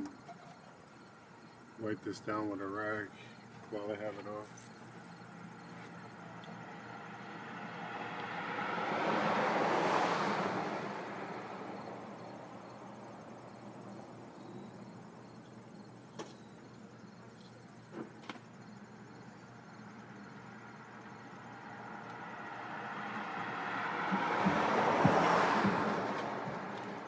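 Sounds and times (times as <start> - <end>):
car passing by: 6.1 - 13.8, 20.6 - 27.0.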